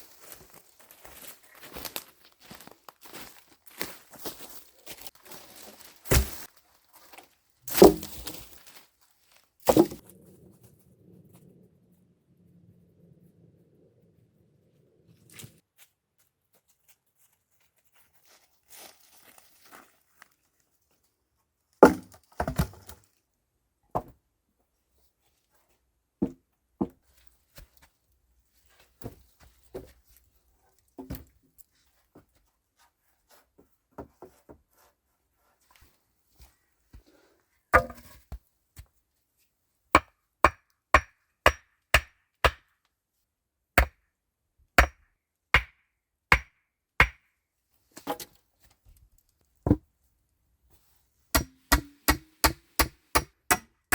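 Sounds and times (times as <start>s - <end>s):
wood being chopped: 6.1s - 6.5s, 7.7s - 8.4s, 9.7s - 10.0s, 21.8s - 22.8s, 37.8s - 38.2s, 40.0s - 42.7s, 43.8s - 44.0s, 44.8s - 45.0s, 45.6s - 47.2s, 51.4s - 53.8s.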